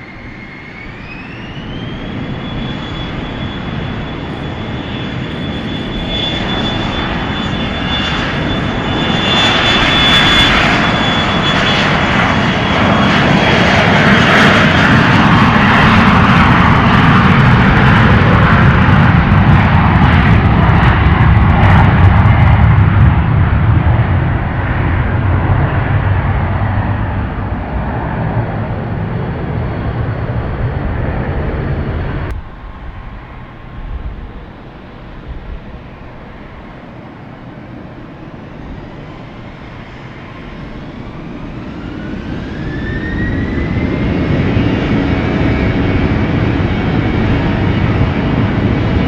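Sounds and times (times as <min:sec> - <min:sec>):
airliner engines passing close: 0:00.0 - 0:49.0
high engine whine: 0:00.0 - 0:49.0.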